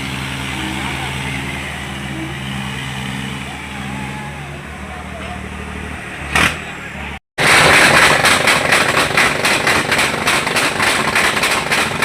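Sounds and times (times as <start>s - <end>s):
tractor engine under load: 4.9s - 12.0s.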